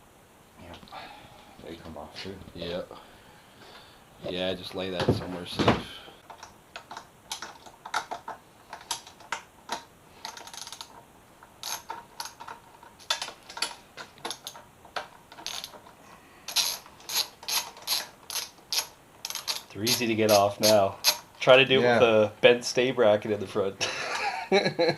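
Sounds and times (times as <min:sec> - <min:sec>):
ratchet wrench clicking: 0:11.6 - 0:12.4, 0:16.5 - 0:21.2.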